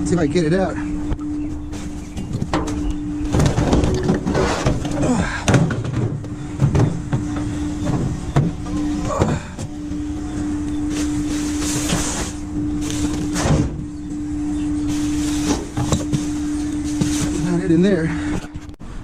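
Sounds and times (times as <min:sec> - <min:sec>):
steady hum: 0:00.0 - 0:19.0
junk knocking and scraping: 0:01.6 - 0:09.8.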